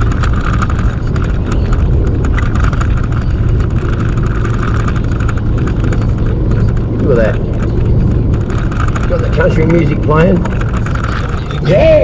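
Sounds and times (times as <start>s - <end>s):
engine hum inside truck cab: 0.0s - 12.0s
tyre and wind noise: 0.0s - 12.0s.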